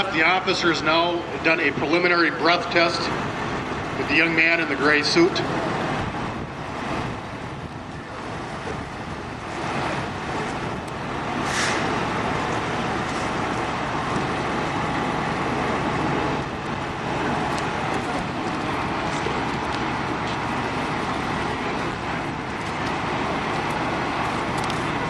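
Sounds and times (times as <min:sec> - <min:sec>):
vehicle engines idling: 0:00.0 - 0:25.0
brief hiss: 0:11.4 - 0:12.0.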